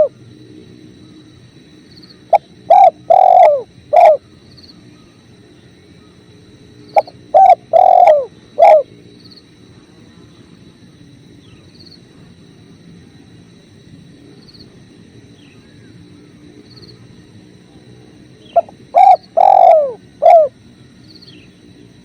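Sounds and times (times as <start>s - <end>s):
dove cooing: 2.3s - 4.3s, 7.0s - 8.9s, 18.4s - 20.6s.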